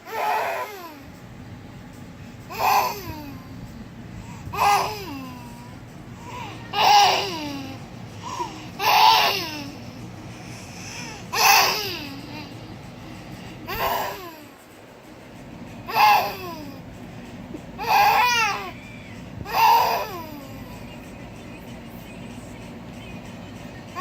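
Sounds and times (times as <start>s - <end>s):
baby vocalising: 0.0s - 1.1s, 2.5s - 3.7s, 4.5s - 9.9s, 10.8s - 12.7s, 13.7s - 14.5s, 15.9s - 16.8s, 17.8s - 18.8s, 19.5s - 20.8s.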